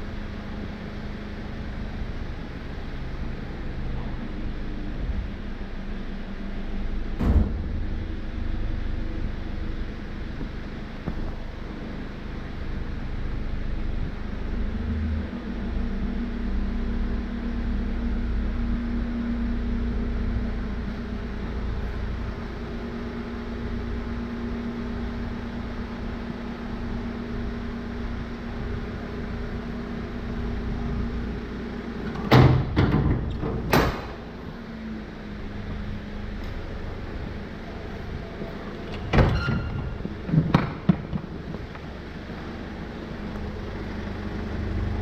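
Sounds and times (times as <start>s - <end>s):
truck engine running: 0.0s - 45.0s
sharp clunks: 7.2s - 7.9s.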